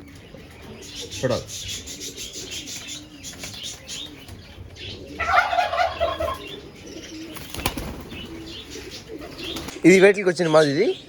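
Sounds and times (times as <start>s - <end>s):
pigeons cooing: 0.0s - 11.0s
pigeon wings flapping: 7.4s - 8.5s.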